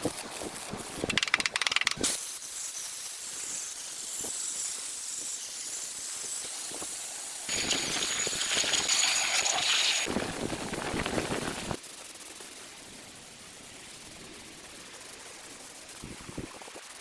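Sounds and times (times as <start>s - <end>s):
sharp clicks: 1.0s - 2.2s.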